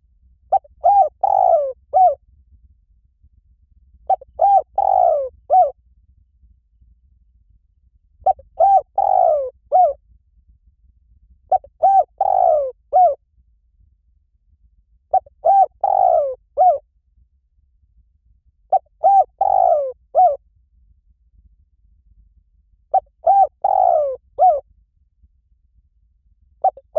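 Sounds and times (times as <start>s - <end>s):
dove cooing: 0.5s - 2.2s, 4.1s - 5.8s, 8.3s - 10.0s, 11.5s - 13.2s, 15.1s - 16.8s, 18.7s - 20.4s, 22.9s - 24.6s, 26.6s - 26.9s.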